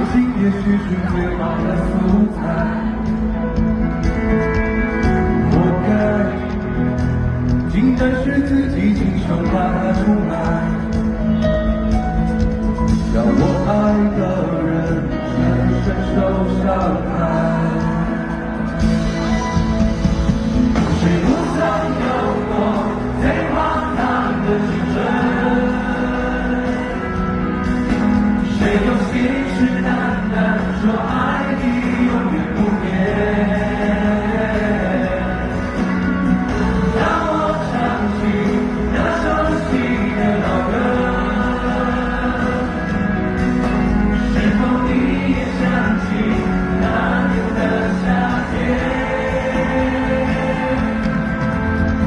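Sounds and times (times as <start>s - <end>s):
live pop band playing: 0.0s - 52.0s
several voices singing together: 20.8s - 27.5s, 28.4s - 43.5s, 44.1s - 51.5s.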